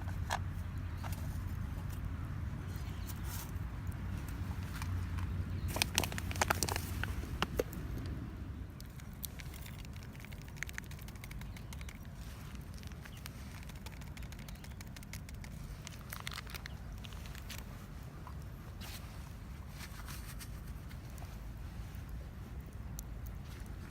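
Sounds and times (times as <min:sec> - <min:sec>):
low steady rumble: 0:00.0 - 0:23.9
campfire crackling and popping: 0:03.8 - 0:18.5, 0:22.0 - 0:23.9.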